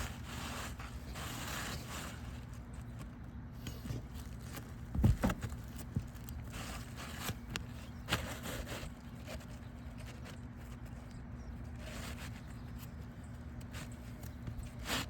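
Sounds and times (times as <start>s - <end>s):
roof shingles scraping and crackling: 0.0s - 11.0s
dull thump: 4.9s - 6.1s.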